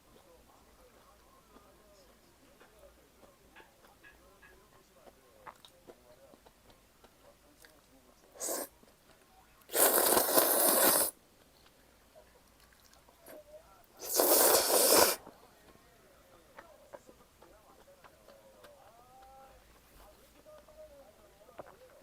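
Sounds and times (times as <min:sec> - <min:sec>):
faint chewing: 0:00.1 - 0:15.9, 0:16.5 - 0:20.7
slurping noodles: 0:08.4 - 0:08.7, 0:09.7 - 0:11.2, 0:14.0 - 0:15.2.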